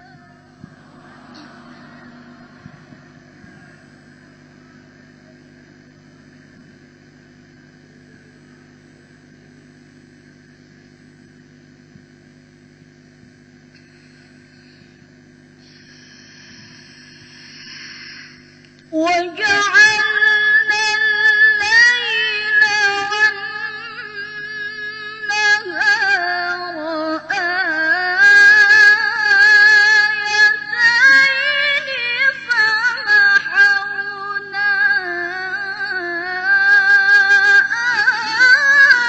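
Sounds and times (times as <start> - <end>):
low hum: 0.0 - 39.0
girl chanting recitation: 18.9 - 23.2.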